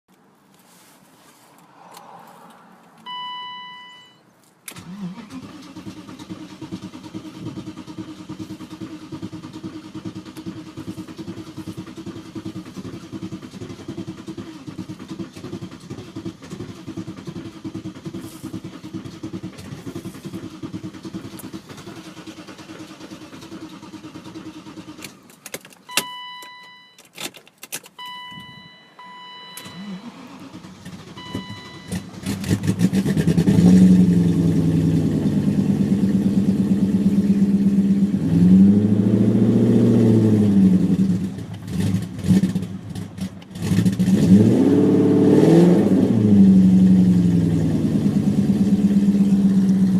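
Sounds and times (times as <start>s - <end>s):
dashboard warning chime: 3.0s - 4.3s, 25.9s - 27.1s, 27.9s - 30.2s, 31.2s - 32.0s
starter motor cranking engine: 4.7s - 25.4s.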